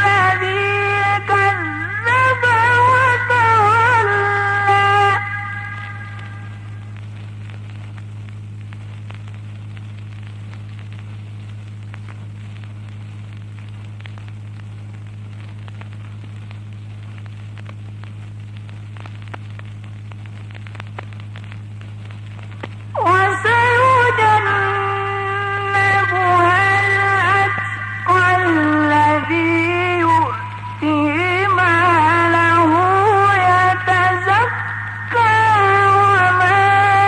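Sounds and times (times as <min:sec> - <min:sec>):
person reciting: 0:00.0 - 0:06.6, 0:23.0 - 0:37.0
faint crackles and clicks: 0:00.0 - 0:37.0
low electrical hum: 0:00.0 - 0:37.0.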